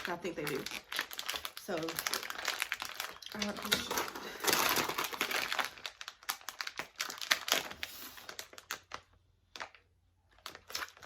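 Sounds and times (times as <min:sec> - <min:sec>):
plastic snack packet crinkling: 0:00.0 - 0:11.0.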